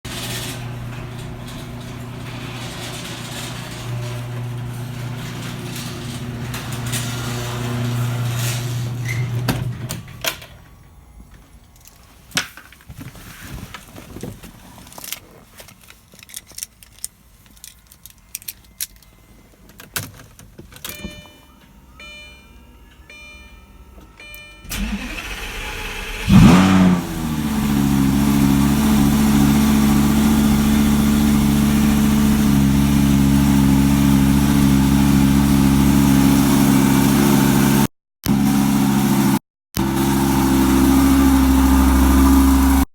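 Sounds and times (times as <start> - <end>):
car engine idling: 24.6 - 42.9.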